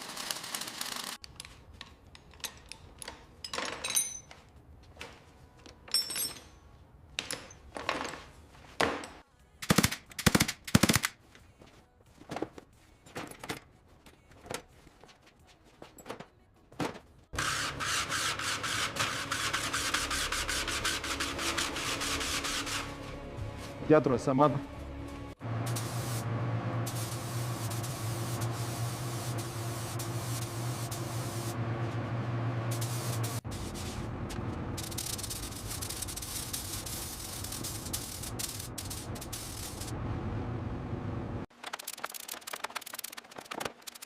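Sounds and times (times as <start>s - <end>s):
fast-rattling hiss: 34.8s - 39.9s.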